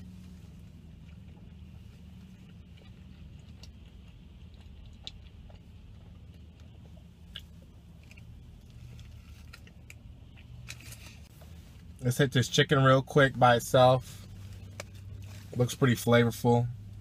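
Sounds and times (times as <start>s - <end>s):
chewing sandwich: 0.0s - 11.9s
low hum inside car: 0.0s - 17.0s.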